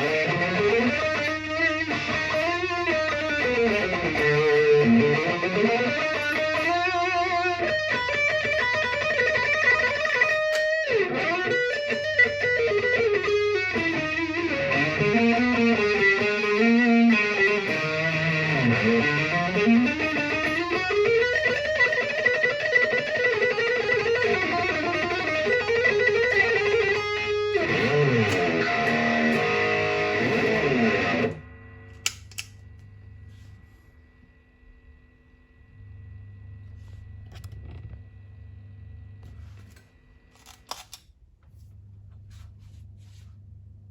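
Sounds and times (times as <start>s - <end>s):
distorted electric guitar lead: 0.0s - 33.5s
faint amp hum: 0.0s - 43.9s
clicks: 31.2s - 32.9s.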